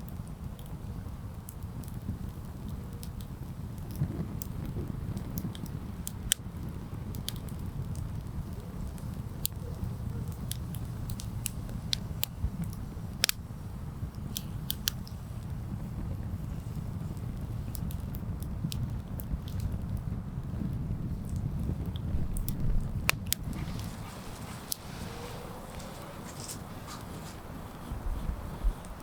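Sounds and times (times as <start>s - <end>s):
campfire crackling and popping: 0.0s - 29.0s
steady low rumble: 20.2s - 29.0s.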